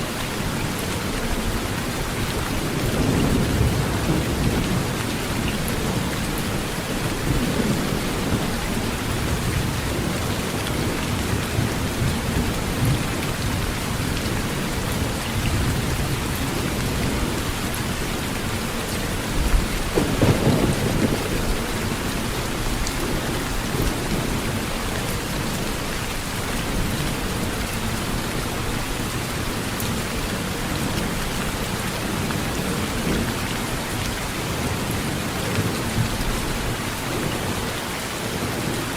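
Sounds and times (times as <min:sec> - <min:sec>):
heavy rain on a metal roof: 0:00.0 - 0:38.9
low thunder rumble: 0:02.6 - 0:25.9.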